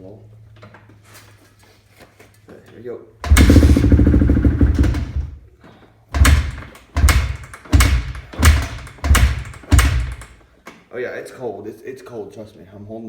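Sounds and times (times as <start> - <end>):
motorcycle engine kick-starting: 3.2 - 5.4, 6.2 - 10.4.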